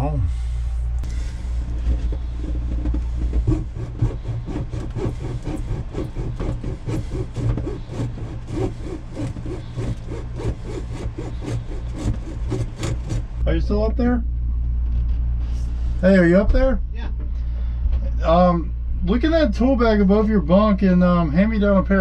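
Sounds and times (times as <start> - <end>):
steady low hum: 0.0 - 22.0
hacksaw cutting rubber hose: 1.9 - 13.4.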